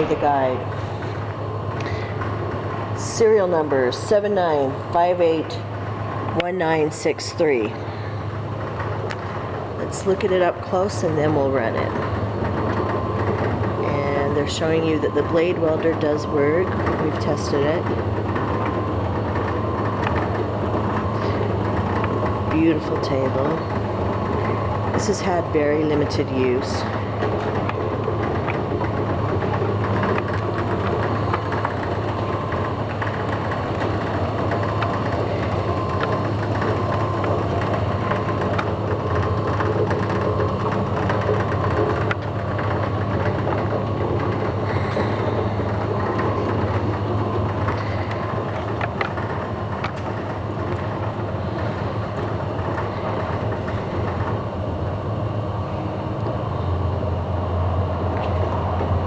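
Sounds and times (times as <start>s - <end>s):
machine hum with whine: 0.0s - 59.0s.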